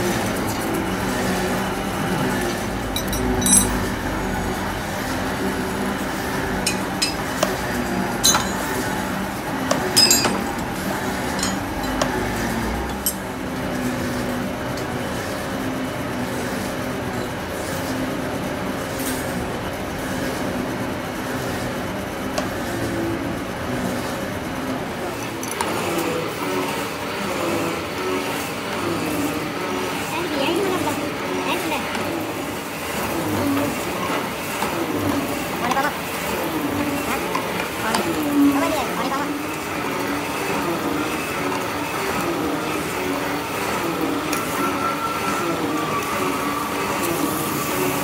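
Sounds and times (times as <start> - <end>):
workshop machinery droning: 0.0 - 48.0
metallic clinks of tools: 3.0 - 3.8, 8.2 - 8.6, 10.0 - 10.5, 11.4 - 12.0.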